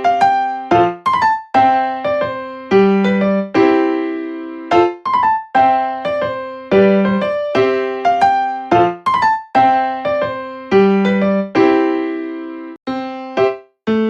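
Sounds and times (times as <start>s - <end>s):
piano notes and chords: 0.0s - 14.0s.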